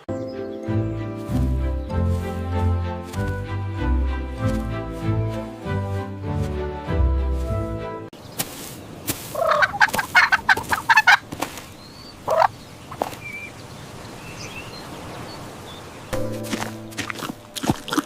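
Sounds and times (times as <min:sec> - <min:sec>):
background music: 0:00.0 - 0:08.1, 0:16.2 - 0:18.0
farm fowl calling: 0:09.2 - 0:13.6.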